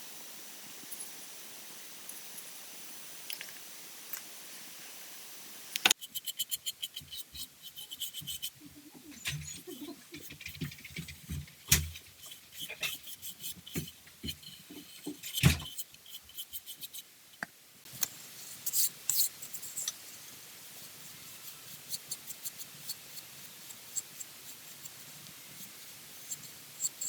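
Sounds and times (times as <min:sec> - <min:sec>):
faint steady hiss: 0:00.0 - 0:27.0
light scratchy scraping: 0:06.0 - 0:17.1.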